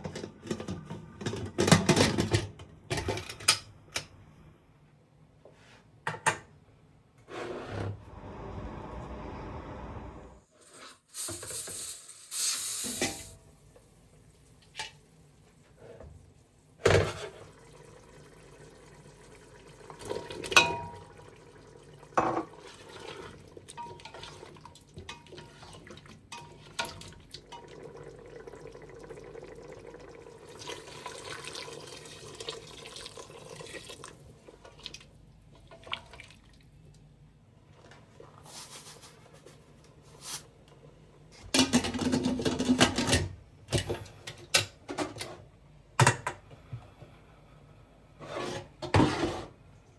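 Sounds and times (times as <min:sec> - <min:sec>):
dishes and utensils clinking: 0:23.7 - 0:24.4
water running from tap: 0:26.9 - 0:34.2.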